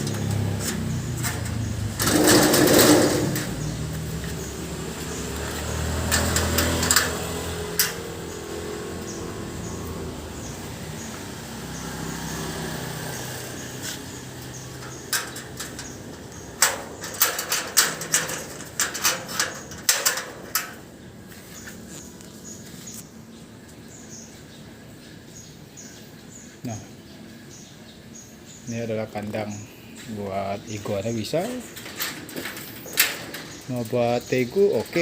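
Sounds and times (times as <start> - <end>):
metal cage clicking and knocking: 0.0 - 9.8, 13.5 - 20.9, 31.3 - 35.0.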